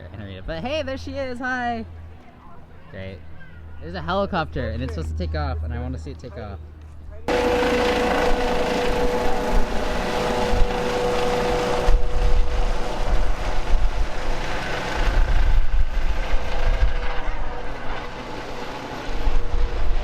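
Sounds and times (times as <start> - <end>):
helicopter turbine whine: 0.5 - 20.0
helicopter rotor beat: 4.7 - 20.0.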